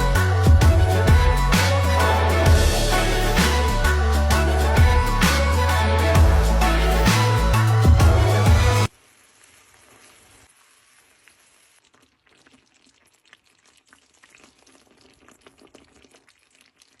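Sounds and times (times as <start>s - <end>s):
music: 0.0s - 8.9s
food sizzling in a pan: 8.9s - 12.7s.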